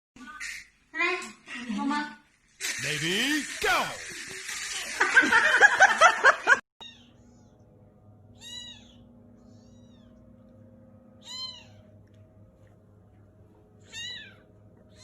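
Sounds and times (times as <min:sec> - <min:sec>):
faint steady hum: 0:06.4 - 0:15.0
cat meowing: 0:08.4 - 0:09.0, 0:11.2 - 0:11.9, 0:13.8 - 0:14.4.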